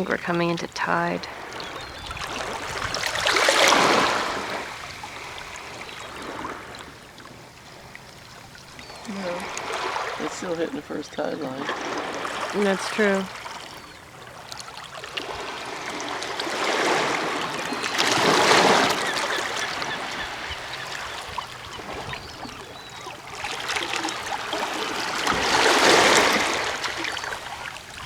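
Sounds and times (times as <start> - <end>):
waves washing over rocks: 2.2 - 6.7, 8.9 - 13.5, 15.1 - 28.0.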